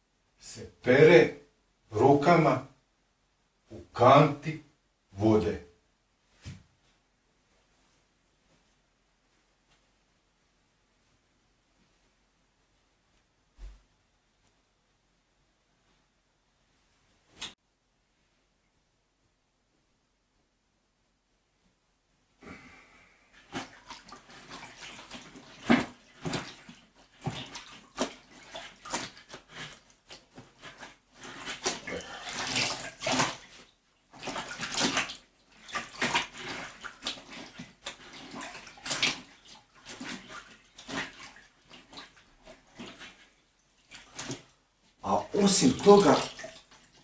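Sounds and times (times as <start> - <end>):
water sloshing in a bucket: 23.3 - 47.0.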